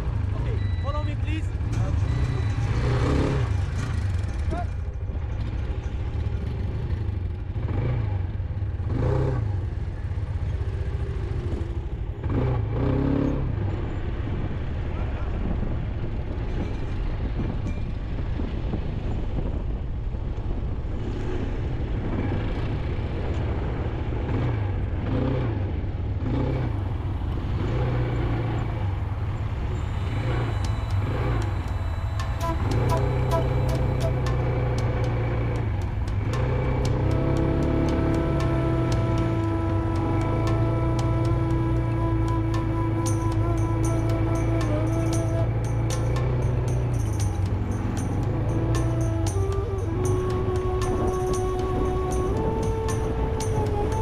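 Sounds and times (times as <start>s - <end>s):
quad bike engine running: 21.9s - 42.1s, 42.7s - 54.0s.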